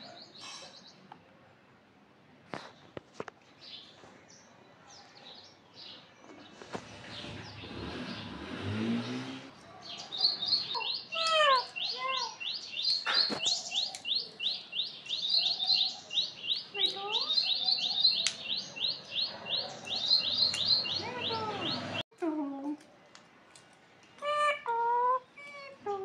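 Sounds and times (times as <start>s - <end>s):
bird chirping: 3.6s - 22.0s.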